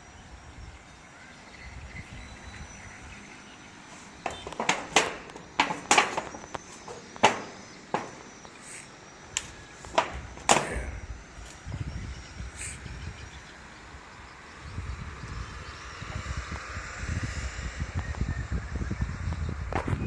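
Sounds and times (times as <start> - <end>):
sharp knocks: 4.2 - 8.5, 9.4 - 10.9.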